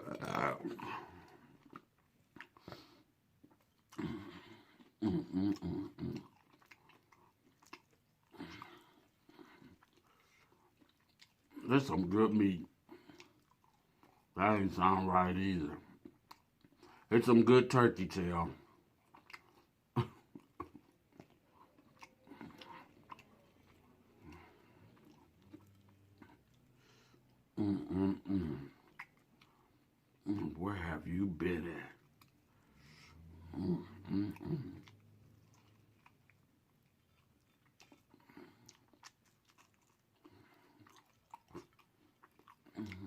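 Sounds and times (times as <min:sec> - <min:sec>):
wet mouth noises: 0:00.0 - 0:11.8, 0:19.0 - 0:30.6, 0:31.9 - 0:43.0
close-up chewing: 0:00.0 - 0:43.0.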